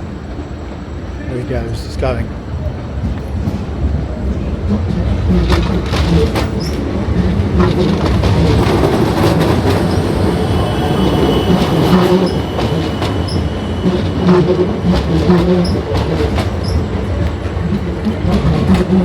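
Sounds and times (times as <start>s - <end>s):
train wheels rumbling and clicking: 0.0s - 19.0s
wheel squeal: 5.0s - 17.1s.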